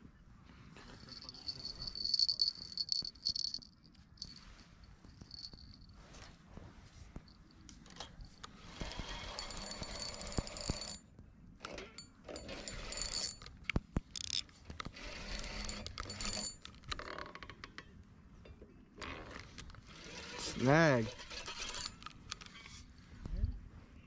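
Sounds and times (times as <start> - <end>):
fishing reel whirring: 9.0 - 11.0, 12.3 - 13.4
fishing reel clicks: 14.1 - 14.4.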